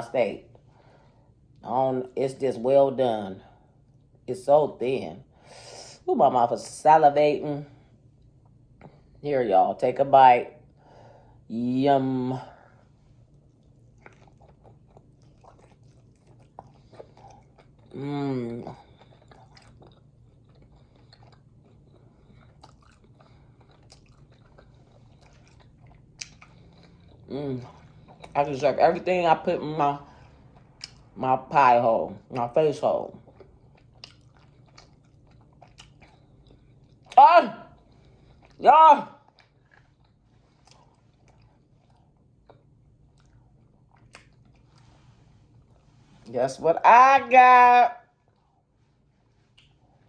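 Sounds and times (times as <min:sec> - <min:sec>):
chewing with mouth clicks: 0:13.0 - 0:29.1, 0:30.0 - 0:31.2, 0:33.1 - 0:46.3, 0:48.2 - 0:50.0.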